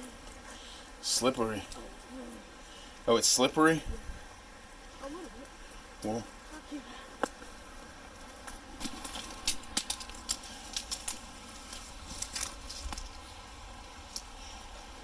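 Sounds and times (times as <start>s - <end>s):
footsteps crunching dry leaves: 7.4s - 14.4s.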